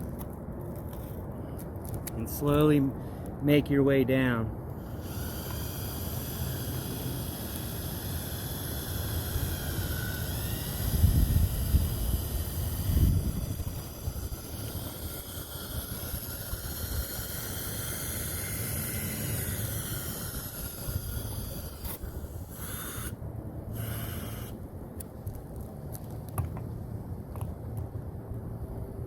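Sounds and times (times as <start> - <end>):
power drill whine: 4.8 - 24.6.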